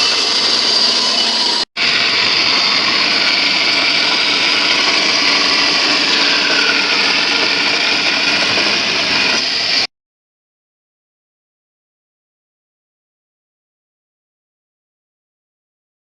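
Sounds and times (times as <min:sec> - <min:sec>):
power tool whirring: 0:00.0 - 0:09.9.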